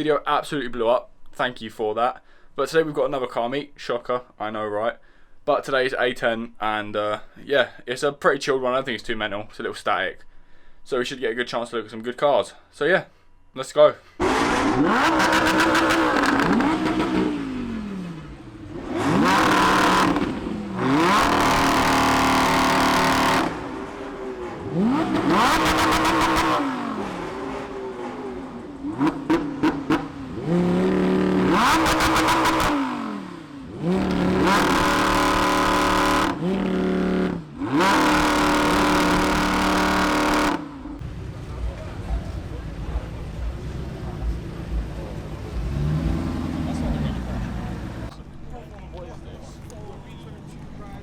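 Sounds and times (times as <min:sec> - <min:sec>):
car engines revving: 0:14.2 - 0:51.0
sharp exhaust pops: 0:28.8 - 0:32.8.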